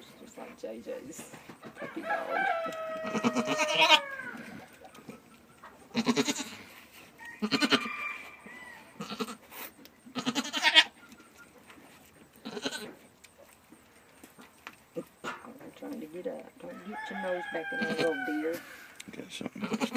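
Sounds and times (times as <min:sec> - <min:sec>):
rooster crowing: 0:01.8 - 0:04.8, 0:07.2 - 0:09.0, 0:16.7 - 0:18.8
goats bleating: 0:02.7 - 0:04.8, 0:05.9 - 0:06.8, 0:07.4 - 0:07.9, 0:09.0 - 0:09.5, 0:10.1 - 0:10.9, 0:12.4 - 0:13.0, 0:17.7 - 0:18.4, 0:19.6 - 0:19.9.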